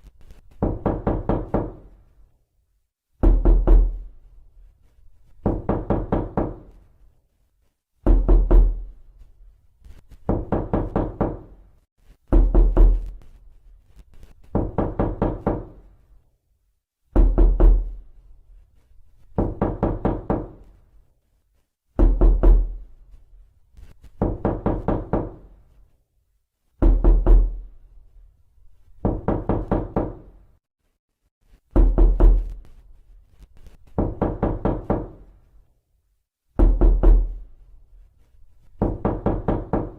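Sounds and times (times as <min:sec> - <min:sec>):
knocking on a door: 0:00.6 - 0:02.0, 0:03.2 - 0:04.1, 0:05.4 - 0:06.8, 0:08.0 - 0:08.9, 0:10.2 - 0:11.6, 0:12.3 - 0:13.1, 0:14.5 - 0:15.9, 0:17.1 - 0:18.0, 0:19.4 - 0:20.6, 0:22.0 - 0:22.8, 0:24.2 - 0:25.5, 0:26.8 - 0:27.6, 0:29.0 - 0:30.4, 0:31.7 - 0:32.6, 0:33.9 - 0:35.3, 0:36.6 - 0:37.4, 0:38.8 - 0:39.9.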